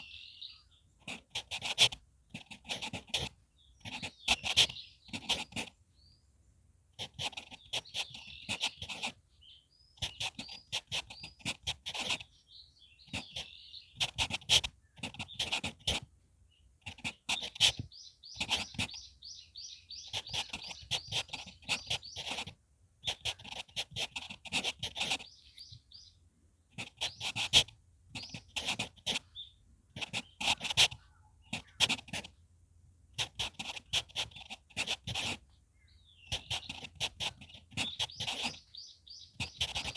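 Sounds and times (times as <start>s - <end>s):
small birds chirping: 0.0s - 32.4s, 33.1s - 39.9s
pencil writing on paper: 1.0s - 5.8s, 7.0s - 9.2s, 10.0s - 12.4s, 13.0s - 16.1s, 16.8s - 19.4s, 20.0s - 25.8s, 26.7s - 29.3s, 29.9s - 32.4s, 33.1s - 35.5s, 36.3s - 39.9s.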